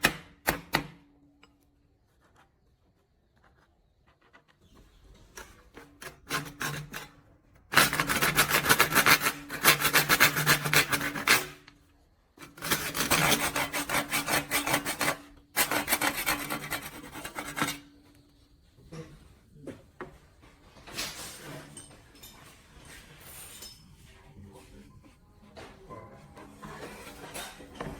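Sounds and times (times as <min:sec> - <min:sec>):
rasping on wood: 0:05.4 - 0:11.6, 0:12.4 - 0:17.9.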